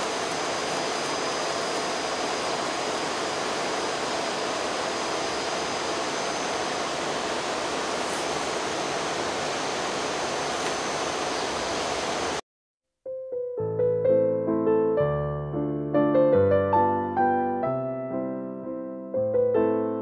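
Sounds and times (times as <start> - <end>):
idling train rushing noise: 0.0 - 12.4
thin high whine: 0.0 - 12.4.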